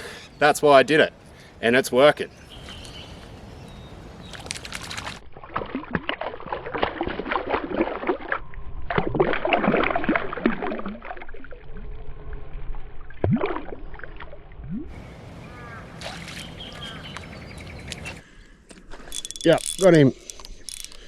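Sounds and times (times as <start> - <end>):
water sloshing and splashing: 4.2 - 19.8.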